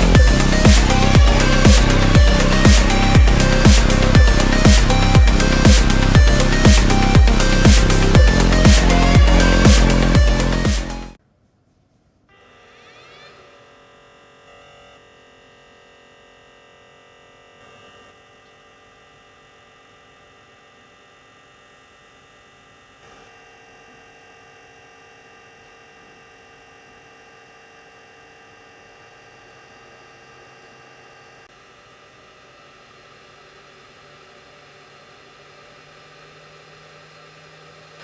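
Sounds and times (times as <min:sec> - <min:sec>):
electric motor whining and humming: 0:00.0 - 0:11.2, 0:33.3 - 0:38.0.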